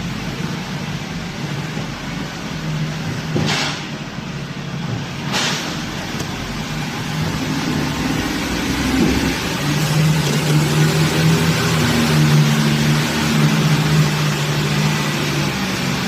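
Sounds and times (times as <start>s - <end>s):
road noise: 0.0s - 16.0s
truck running: 0.0s - 16.0s
short air hisses: 5.2s - 5.9s.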